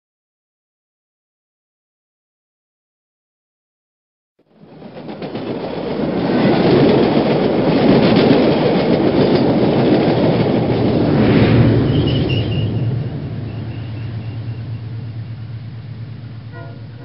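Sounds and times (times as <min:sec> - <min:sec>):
train running on rails: 0:04.4 - 0:17.0.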